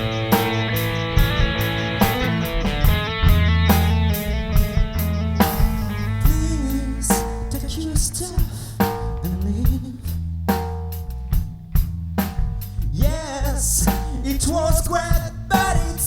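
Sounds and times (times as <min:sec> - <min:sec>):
rock band instrumental: 0:00.0 - 0:09.1
drum kit beating: 0:00.0 - 0:16.0.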